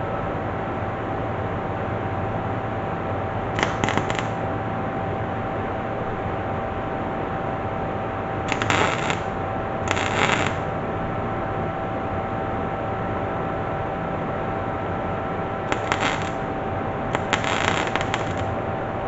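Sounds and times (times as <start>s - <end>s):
steady hum: 0.0s - 19.0s
welder arc crackling: 3.6s - 4.4s, 8.5s - 10.7s, 15.7s - 16.5s, 17.1s - 18.6s.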